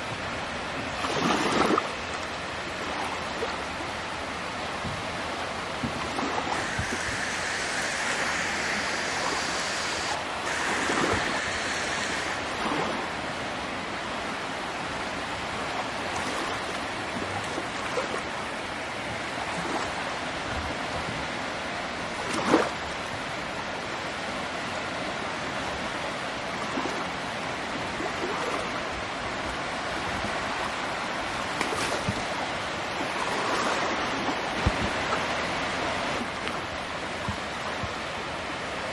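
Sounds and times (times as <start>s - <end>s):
wind rushing: 6.1s - 12.9s.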